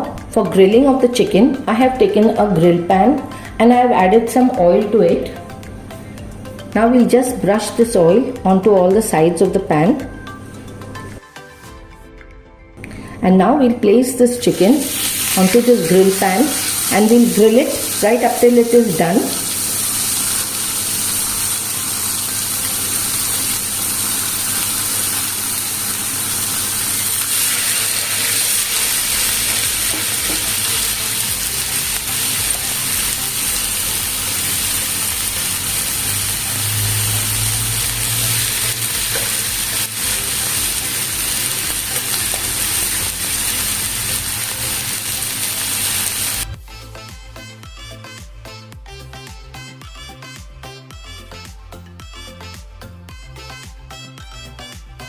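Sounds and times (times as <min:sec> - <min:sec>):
chicken sizzling in oil: 0:14.5 - 0:46.6.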